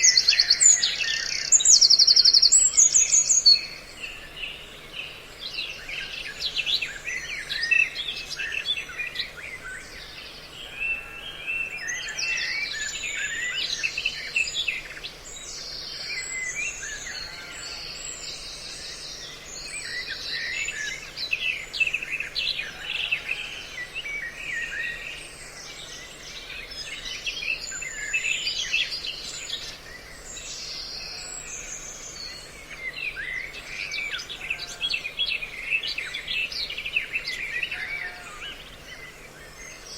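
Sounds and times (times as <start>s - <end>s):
songbird calls and trills: 0.0s - 39.9s.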